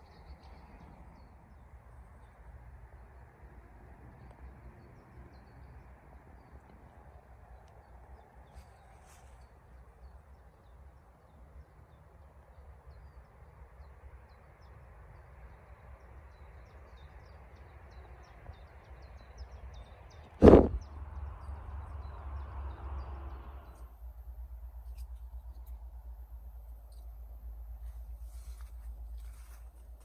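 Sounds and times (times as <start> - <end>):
loud thump: 20.4 - 20.8
low rumble and hiss: 20.4 - 30.0.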